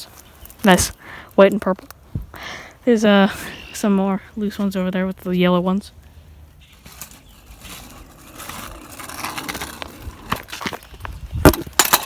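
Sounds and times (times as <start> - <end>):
scraping and rustling: 6.6 - 12.0.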